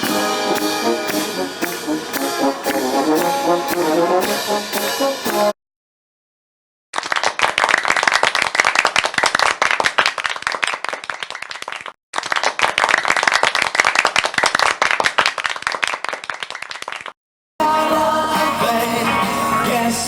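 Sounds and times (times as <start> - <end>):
audience applauding: 7.0 - 17.1.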